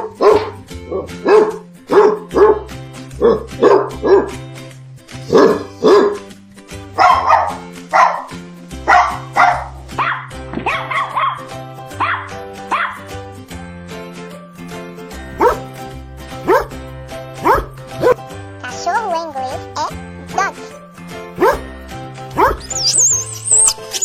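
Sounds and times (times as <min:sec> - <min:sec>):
dog barking: 0:00.0 - 0:04.4, 0:05.3 - 0:06.3, 0:07.0 - 0:13.1, 0:15.4 - 0:15.7, 0:16.4 - 0:16.8, 0:17.4 - 0:18.2, 0:21.4 - 0:21.7, 0:22.3 - 0:22.9
background music with bass line: 0:00.0 - 0:24.0.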